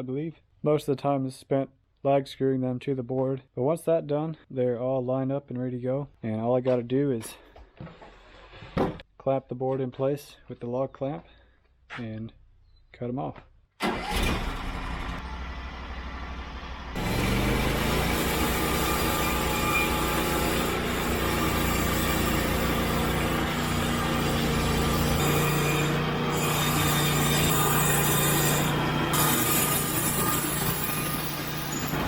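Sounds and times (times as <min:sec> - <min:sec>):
band sawmill cutting log: 0:14.2 - 0:32.0.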